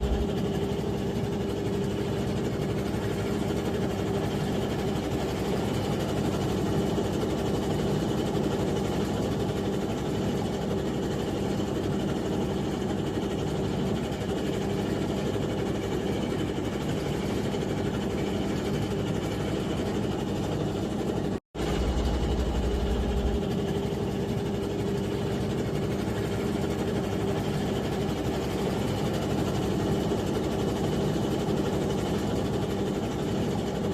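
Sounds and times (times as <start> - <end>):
ship engine droning: 14.0 - 29.5
heavy low rumble: 21.6 - 23.8.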